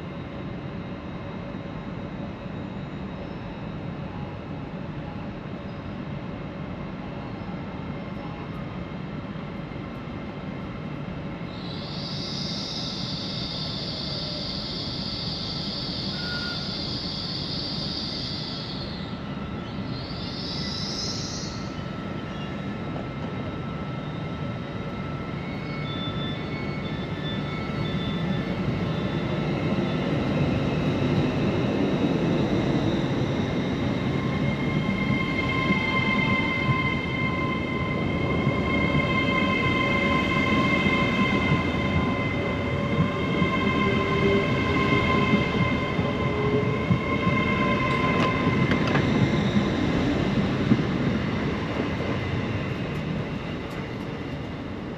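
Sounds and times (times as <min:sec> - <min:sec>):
train rumble: 0:00.0 - 0:54.9
high-pitched wheel squeal: 0:11.6 - 0:19.1, 0:25.4 - 0:29.4.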